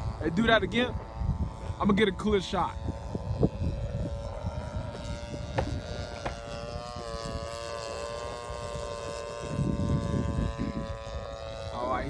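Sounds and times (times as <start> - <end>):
model airplane motor whining: 0.0 - 12.0
wind rumble on microphone: 0.0 - 12.0.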